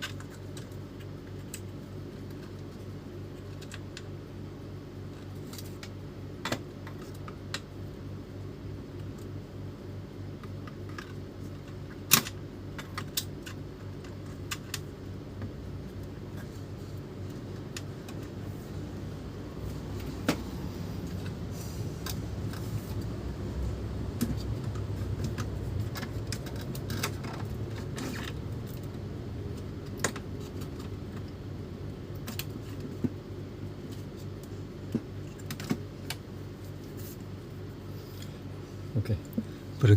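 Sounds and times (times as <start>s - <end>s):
steady low hum: 0.0s - 39.9s
plastic and metal parts clicking: 24.2s - 28.9s.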